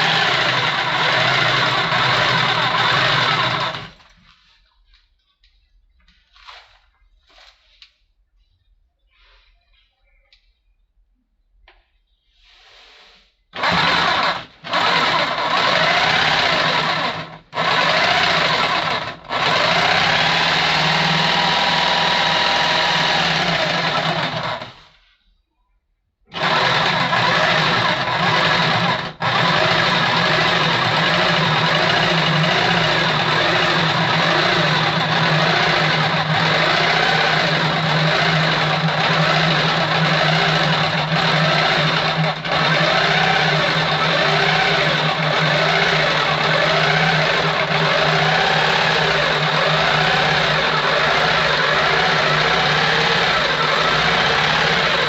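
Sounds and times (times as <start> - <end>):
electric power tool running: 0.0 - 4.1, 13.6 - 24.9, 26.3 - 55.0.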